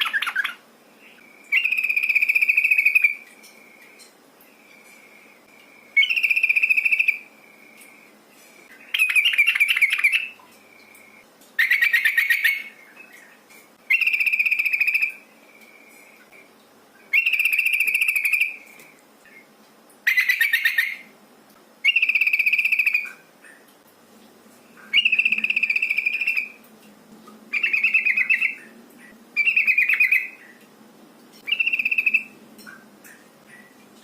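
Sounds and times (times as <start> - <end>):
bulbul rattling calls: 11.6 - 12.7, 17.1 - 18.6, 20.1 - 21.0.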